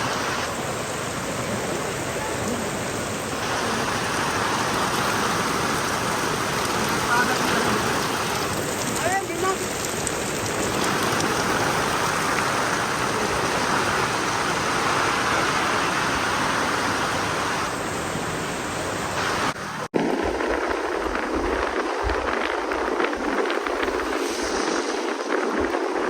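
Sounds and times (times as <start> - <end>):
steady rushing noise: 0.0 - 26.0
gusty low rumble: 19.9 - 26.0.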